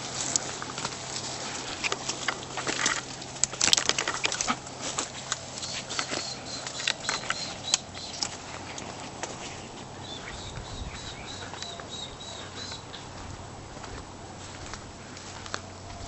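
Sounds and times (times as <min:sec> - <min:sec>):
footsteps on dry leaves: 0:00.0 - 0:16.0
bird calling high notes: 0:05.6 - 0:08.3, 0:10.0 - 0:13.2.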